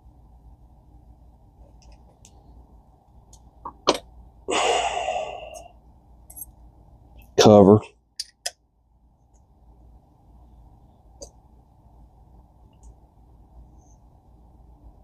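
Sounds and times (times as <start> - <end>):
person exhaling loudly: 4.5 - 5.7.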